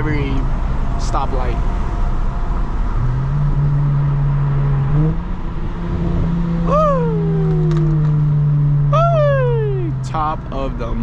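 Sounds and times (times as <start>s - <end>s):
car exhaust droning: 0.0s - 11.0s
high cry: 6.7s - 7.7s, 9.0s - 10.0s.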